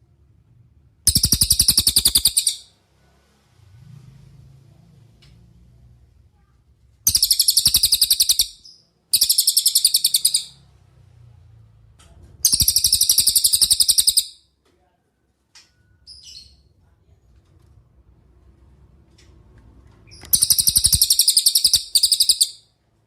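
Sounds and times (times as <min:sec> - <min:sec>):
bird chirps: 0:01.1 - 0:02.7, 0:07.1 - 0:10.7, 0:12.4 - 0:14.5, 0:20.1 - 0:22.8
bird trilling: 0:01.1 - 0:02.7, 0:07.1 - 0:10.6, 0:12.4 - 0:14.4, 0:20.1 - 0:22.7.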